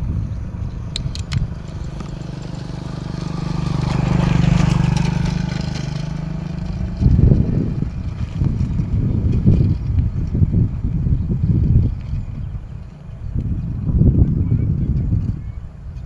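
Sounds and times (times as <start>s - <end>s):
vehicle engine passing by: 0.7s - 11.8s.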